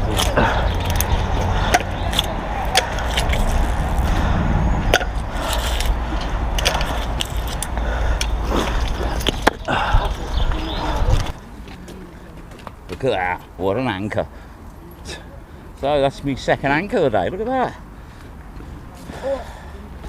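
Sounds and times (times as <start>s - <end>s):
wind rumble on microphone: 0.7s - 11.4s
rope and anchor clicks and scrapes: 5.3s - 9.6s.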